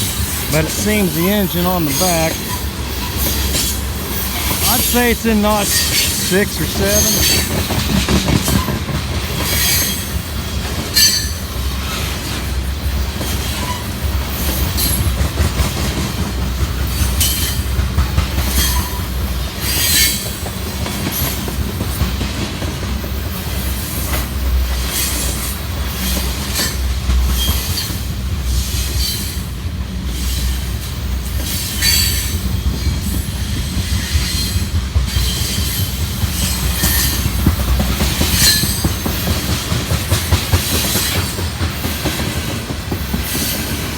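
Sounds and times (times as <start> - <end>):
train wheels squealing: 10.9 - 11.7, 31.4 - 37.4, 38.2 - 39.3.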